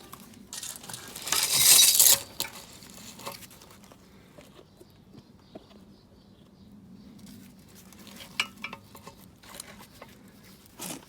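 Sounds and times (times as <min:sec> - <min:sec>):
metal parts scraping: 0:00.0 - 0:03.6.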